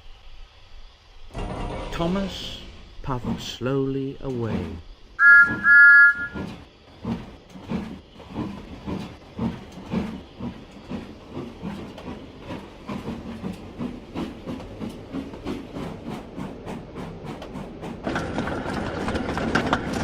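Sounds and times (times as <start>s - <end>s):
steam locomotive puffing: 1.3s - 20.0s
steam whistle toots: 5.2s - 6.5s.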